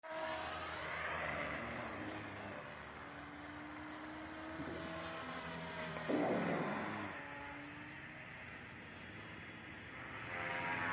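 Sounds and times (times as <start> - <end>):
rotor blades swishing: 0.0 - 10.9
electric motor whining: 0.1 - 10.9.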